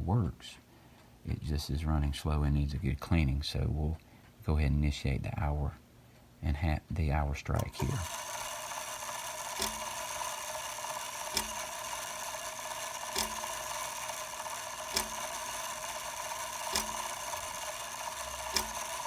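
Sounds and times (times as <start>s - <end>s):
clock strike hammer clicking: 7.6s - 19.0s.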